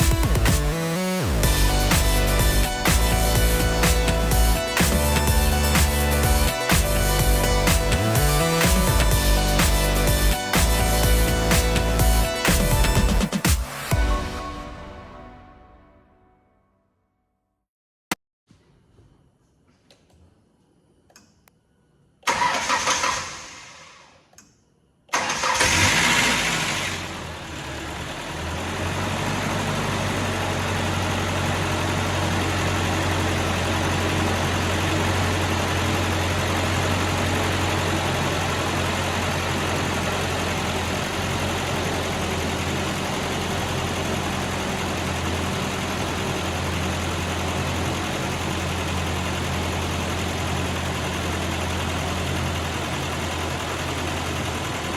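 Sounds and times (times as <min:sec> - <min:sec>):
engine idling: 0:00.0 - 0:13.4, 0:25.1 - 0:54.9
car engine starting: 0:00.0 - 0:14.6, 0:22.3 - 0:24.2, 0:25.1 - 0:54.9.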